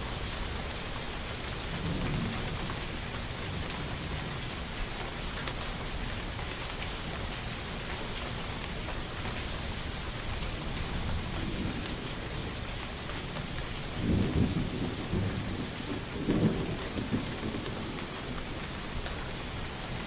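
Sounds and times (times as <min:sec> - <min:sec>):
steady rain falling: 0:00.0 - 0:20.0
low thunder rolling: 0:13.4 - 0:18.3.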